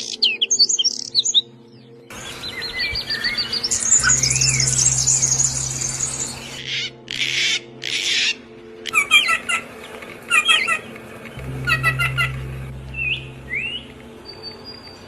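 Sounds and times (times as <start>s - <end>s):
bird chirping phrase: 0.0s - 9.7s, 10.3s - 15.0s
bird high trill: 2.2s - 9.7s, 10.3s - 14.4s
bird harsh squawks: 5.7s - 9.7s.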